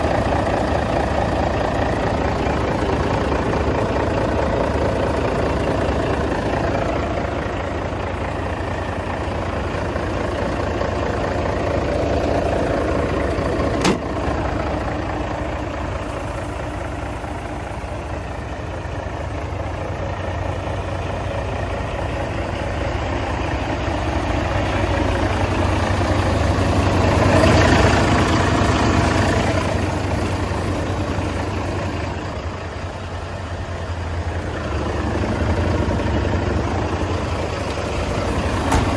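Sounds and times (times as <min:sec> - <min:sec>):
truck diesel engine idling: 0:00.0 - 0:38.9
sharp click: 0:13.8 - 0:14.1.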